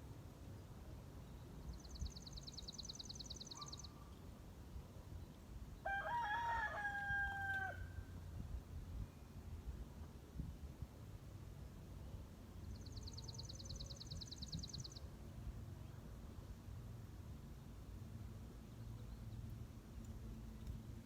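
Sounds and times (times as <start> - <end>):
songbird high trill: 1.8 - 4.1
rooster crowing: 5.8 - 8.0.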